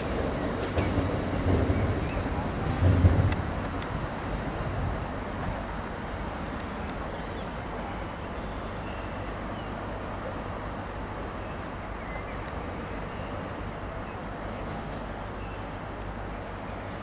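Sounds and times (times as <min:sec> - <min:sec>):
train humming: 0:00.0 - 0:17.0.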